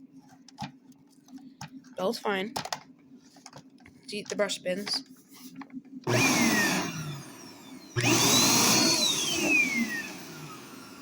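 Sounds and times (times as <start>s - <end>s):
vacuum cleaner motor whining: 6.1s - 11.0s.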